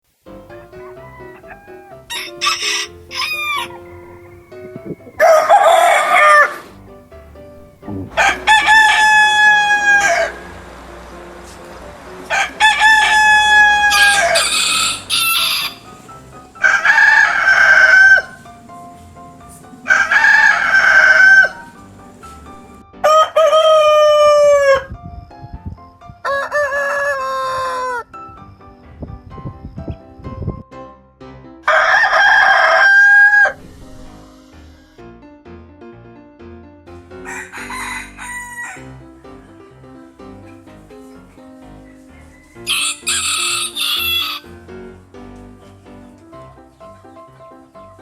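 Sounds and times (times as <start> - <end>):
rooster crowing: 0.5 - 6.8, 7.9 - 24.9, 26.2 - 28.1, 31.7 - 33.6, 37.2 - 39.6, 41.9 - 44.5.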